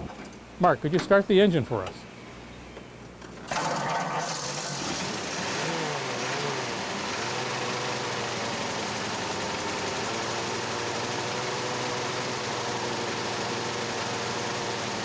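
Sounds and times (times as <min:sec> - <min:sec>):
car engine revving and idling: 0:03.5 - 0:15.0.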